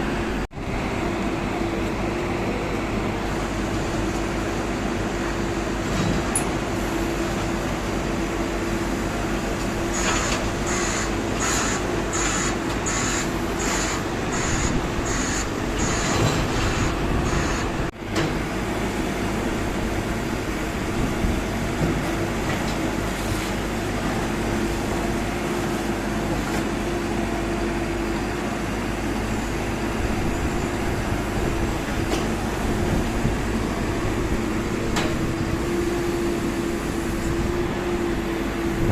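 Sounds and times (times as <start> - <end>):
heavy engine humming: 0.0 - 38.9.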